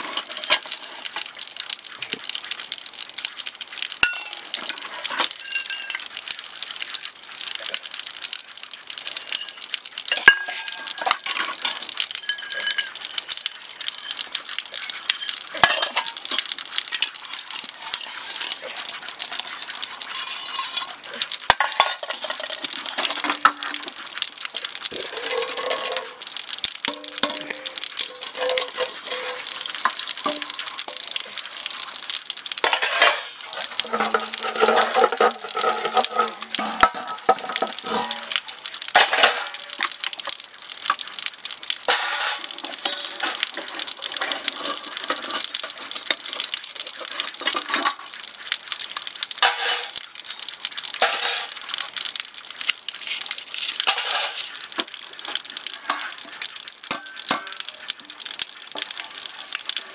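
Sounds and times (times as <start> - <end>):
food sizzling in a pan: 0.0 - 59.9
utensils clinking on pan: 4.0 - 6.0, 9.2 - 13.1, 14.8 - 16.4, 20.1 - 23.9, 26.9 - 30.6, 32.6 - 38.3, 39.0 - 39.9, 41.9 - 46.4, 49.4 - 50.0, 51.0 - 51.6, 53.8 - 54.5, 56.9 - 57.6.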